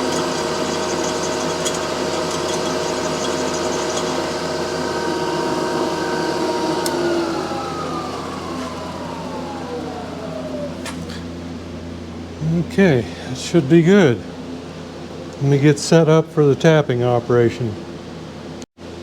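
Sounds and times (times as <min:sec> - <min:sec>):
machine tool motor whining: 0:00.0 - 0:11.4.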